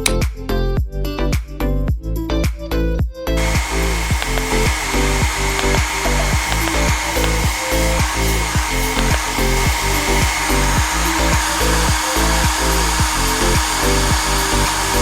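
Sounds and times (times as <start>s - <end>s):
background music with bass: 0.0s - 15.0s
hair dryer running: 3.4s - 15.0s.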